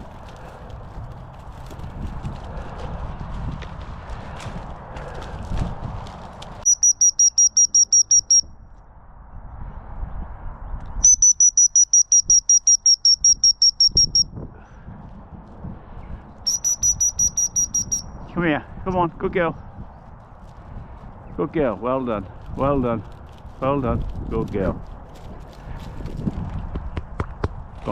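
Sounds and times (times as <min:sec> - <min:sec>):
dog whistle pips: 0:06.7 - 0:08.4, 0:11.0 - 0:14.2, 0:16.5 - 0:18.0.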